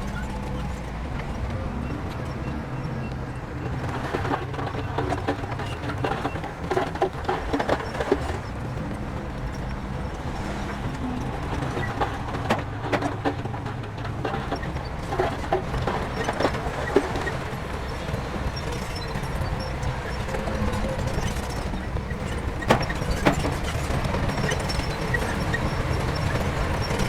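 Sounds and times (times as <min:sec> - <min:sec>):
heavy diesel machinery running: 0:00.0 - 0:27.0
metallic clanks and knocks: 0:14.3 - 0:27.0.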